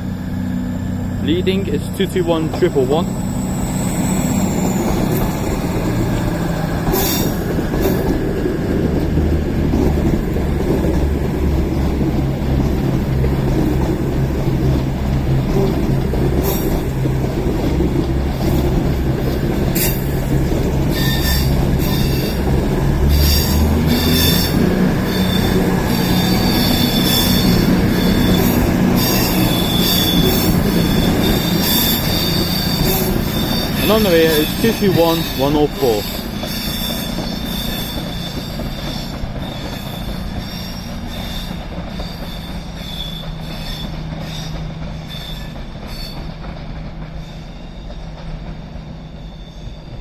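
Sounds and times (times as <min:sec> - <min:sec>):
train diesel engines droning: 0:00.0 - 0:50.0
wheels clicking on track: 0:01.2 - 0:49.3
wheel squeal: 0:02.4 - 0:08.4, 0:18.4 - 0:46.5, 0:47.1 - 0:50.0.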